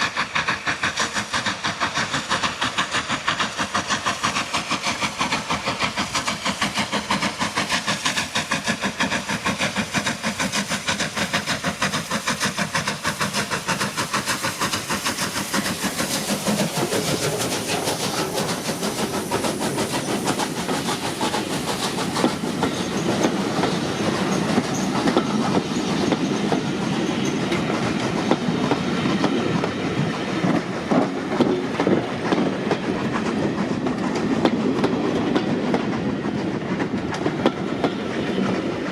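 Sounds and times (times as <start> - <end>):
steam locomotive exhaust beats: 0.0 - 38.9
train wheels clattering over rail joints: 0.0 - 38.9.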